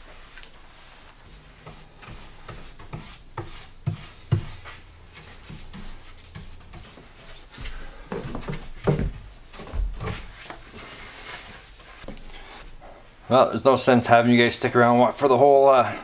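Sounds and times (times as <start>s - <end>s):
paintbrush rubbing on wood: 0.0s - 12.9s, 13.8s - 15.3s
knocks and thumps: 5.6s - 10.6s.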